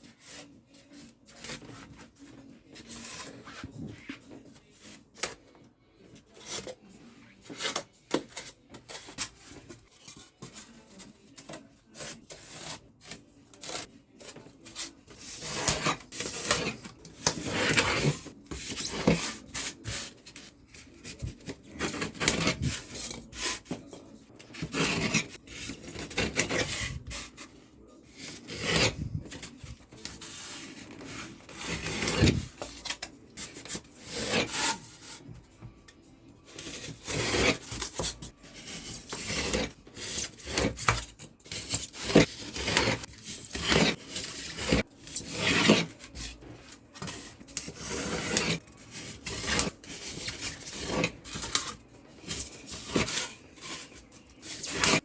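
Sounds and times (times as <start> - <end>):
rasping strokes on polystyrene foam: 47.3 - 51.2.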